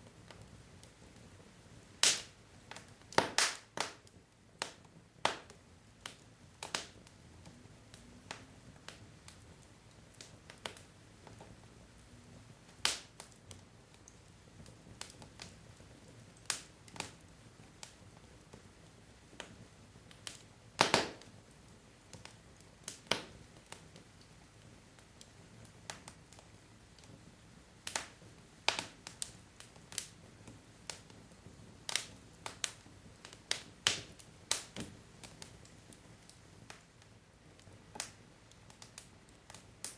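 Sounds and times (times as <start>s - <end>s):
faint hiss of flames: 0.0s - 39.9s
fire popping and snapping: 0.0s - 39.9s.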